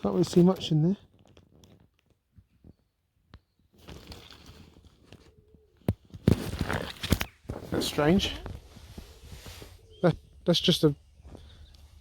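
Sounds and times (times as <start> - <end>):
rustling: 3.7 - 10.0.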